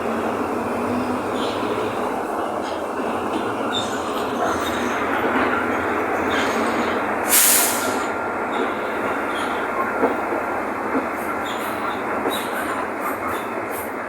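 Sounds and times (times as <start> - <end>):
bus diesel engine running: 0.0 - 14.0
rattle of moving bus: 0.0 - 14.0
short hiss: 7.3 - 8.0.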